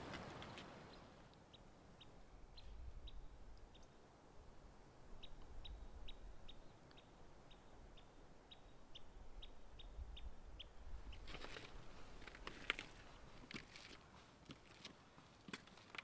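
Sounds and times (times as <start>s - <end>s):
crackling rustle: 0.0s - 1.4s, 11.1s - 16.0s.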